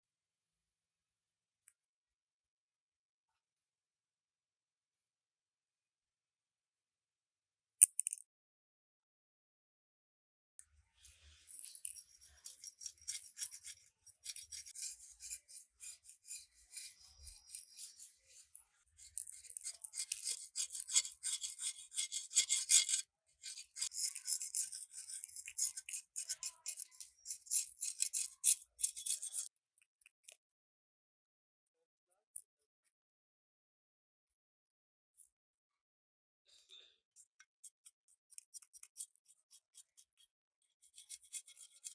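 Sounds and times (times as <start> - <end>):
hand tool scraping rusted metal: 11.5 - 29.5, 40.8 - 41.9.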